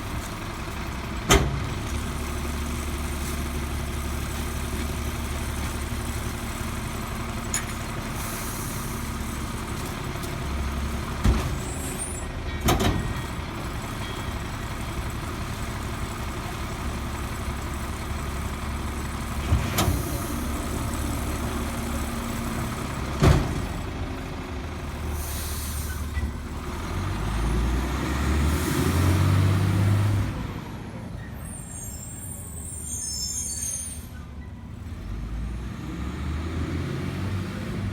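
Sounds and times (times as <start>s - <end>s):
garbage truck engine running: 0.0s - 32.8s.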